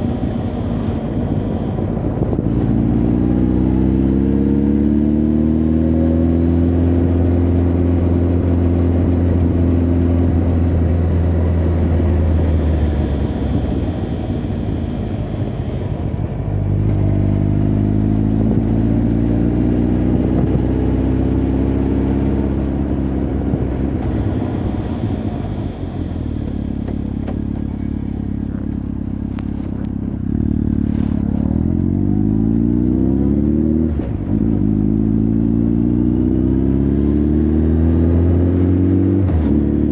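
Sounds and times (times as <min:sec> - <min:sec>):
motorcycle engine revving: 0:16.4 - 0:39.9.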